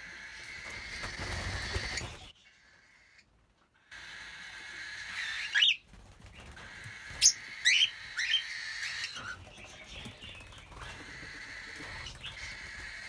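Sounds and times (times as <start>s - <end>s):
background bird chatter: 0.0s - 13.0s.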